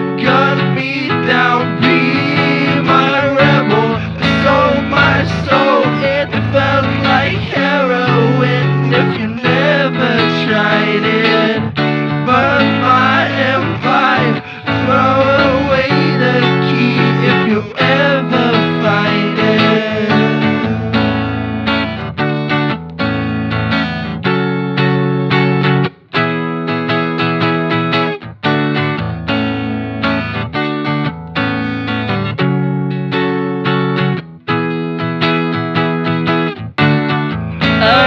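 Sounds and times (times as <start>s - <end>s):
strummed guitar chords with effects: 0.0s - 38.0s.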